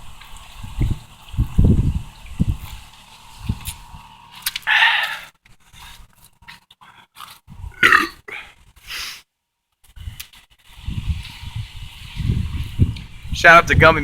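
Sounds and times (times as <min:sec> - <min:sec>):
man breathing out hard: 0:04.7 - 0:05.3
loud burp: 0:07.8 - 0:08.4.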